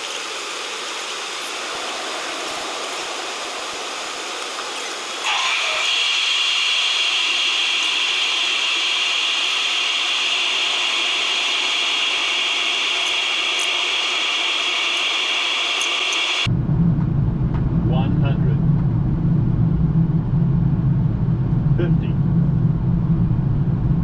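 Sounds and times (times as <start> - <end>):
jet airliner noise: 0.0 - 16.5.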